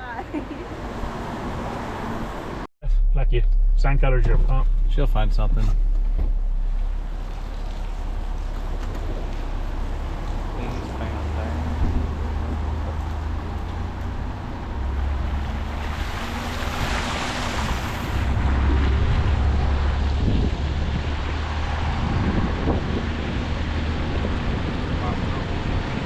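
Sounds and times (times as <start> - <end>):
car road and engine rumble: 0.0 - 26.0
tyres hissing on wet road: 7.2 - 18.7.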